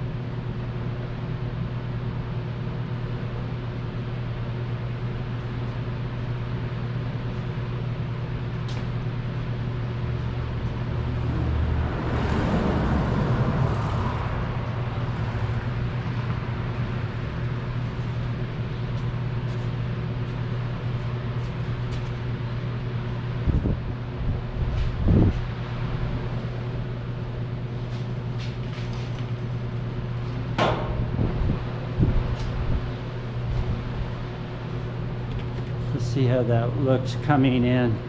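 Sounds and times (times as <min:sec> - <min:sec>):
motor vehicle humming: 0:09.6 - 0:36.2.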